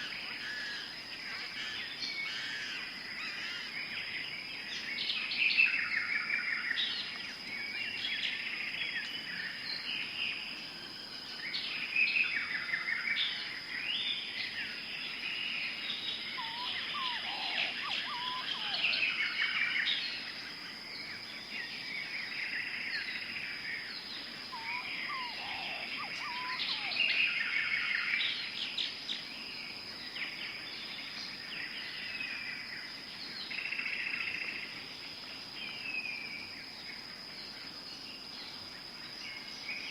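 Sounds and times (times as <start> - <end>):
birds chirping and trilling: 11.4 - 35.1
low gliding bird calls: 16.2 - 19.2, 24.5 - 27.9.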